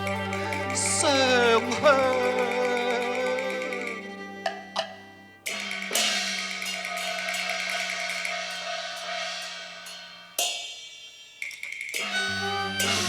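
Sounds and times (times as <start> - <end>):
melodic instruments: 0.0 - 9.8
cymbal crash ringing: 3.7 - 13.0.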